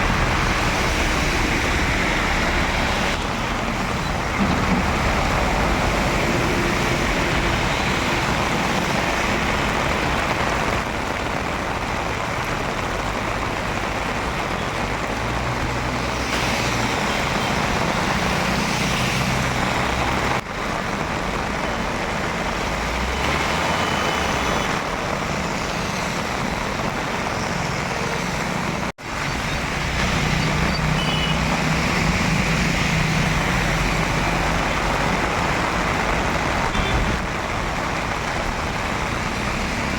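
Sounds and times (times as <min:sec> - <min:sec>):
heavy rain: 0:00.0 - 0:39.9
traffic on wet streets: 0:00.0 - 0:39.9.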